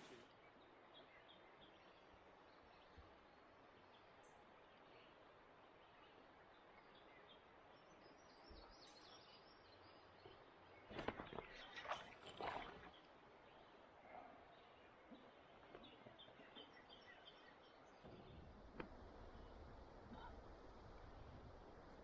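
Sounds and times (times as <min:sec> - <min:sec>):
knocks and splashy clatter: 0:10.8 - 0:13.0
faint bird calls: 0:19.4 - 0:20.7.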